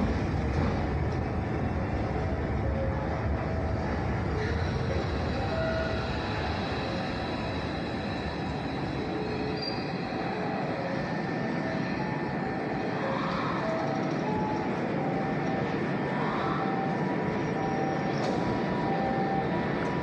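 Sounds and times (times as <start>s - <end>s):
electric train rumbling: 0.0s - 20.0s
wheel and brake squeals: 3.6s - 14.8s.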